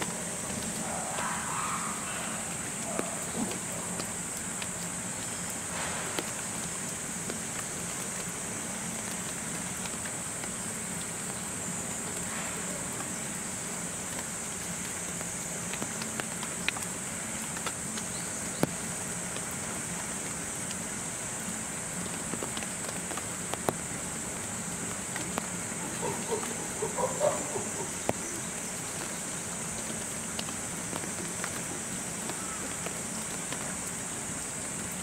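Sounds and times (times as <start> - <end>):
rain patter: 0.0 - 35.0.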